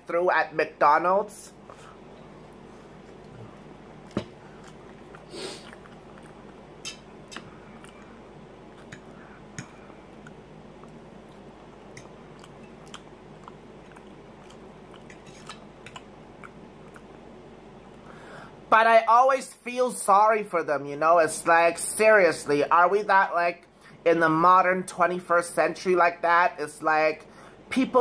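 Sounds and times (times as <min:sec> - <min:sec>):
person chewing food: 0:01.6 - 0:18.1.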